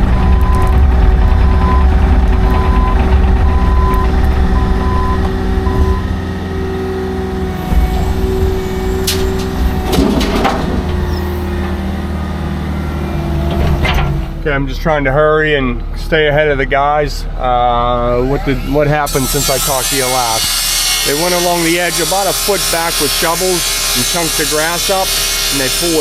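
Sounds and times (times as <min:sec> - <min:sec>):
reversing alarm beeping: 0:00.0 - 0:06.9, 0:07.6 - 0:09.9
diesel engine running: 0:00.0 - 0:26.0.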